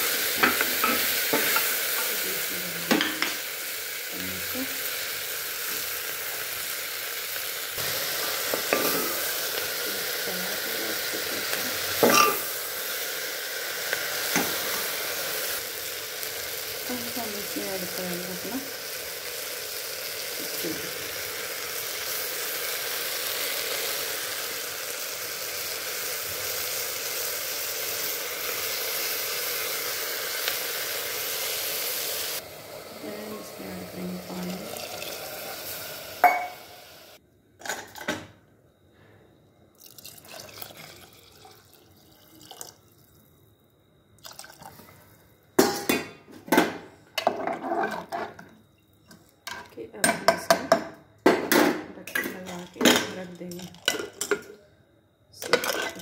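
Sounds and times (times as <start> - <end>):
vegetables sizzling in oil: 0.0 - 37.8
water pouring into pot: 3.2 - 36.8, 39.8 - 43.2, 44.2 - 44.9.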